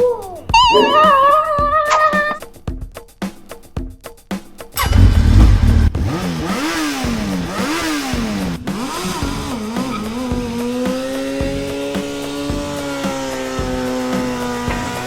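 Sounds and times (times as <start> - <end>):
motorcycle engine revving: 4.8 - 15.0.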